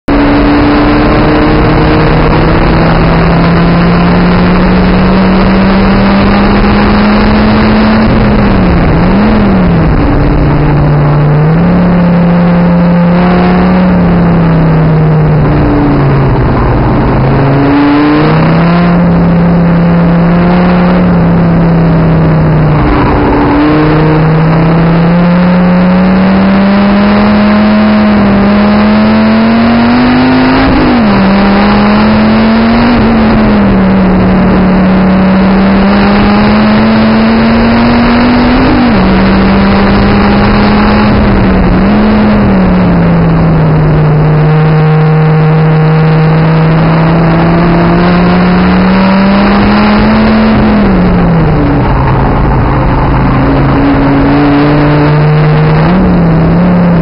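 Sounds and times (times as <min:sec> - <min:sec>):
race car engine revving: 0:00.0 - 0:57.0
wind and road noise: 0:00.0 - 0:57.0.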